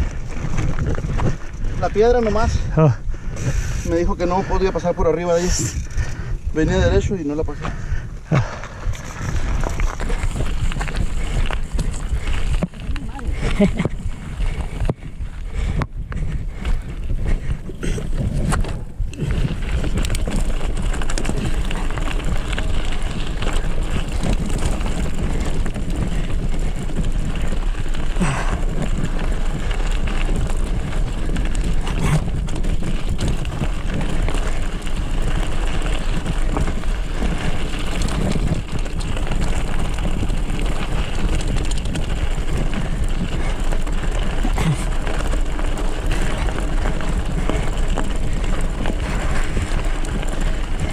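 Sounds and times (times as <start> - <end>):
knobby tyres rolling on rocky trail: 0.0 - 50.9
wind buffeting microphone: 0.0 - 50.9.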